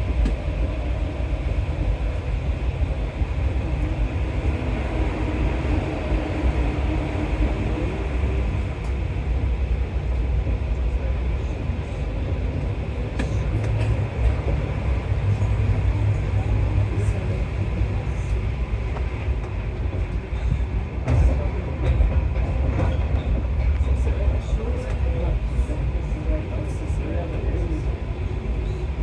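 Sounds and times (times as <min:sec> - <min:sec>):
metro train rumbling in a tunnel: 0:00.0 - 0:29.0.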